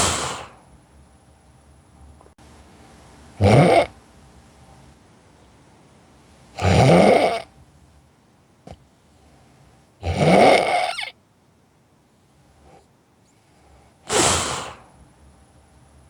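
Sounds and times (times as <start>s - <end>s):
person snoring: 0.0s - 0.6s, 3.4s - 3.9s, 6.6s - 7.5s, 10.0s - 11.0s, 14.1s - 14.9s.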